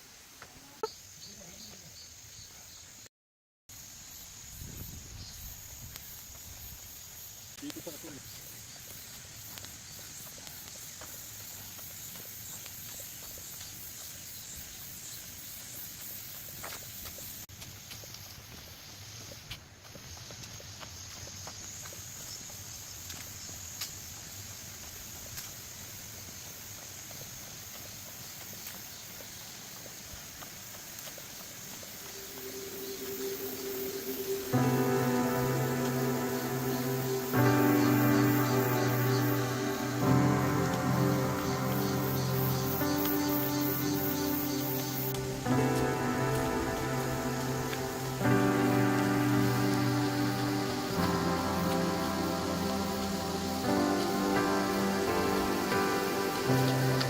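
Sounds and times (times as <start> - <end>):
faint chirps: 0.4 - 3.1, 3.8 - 17.4, 31.2 - 57.0
high insect drone: 3.7 - 57.0.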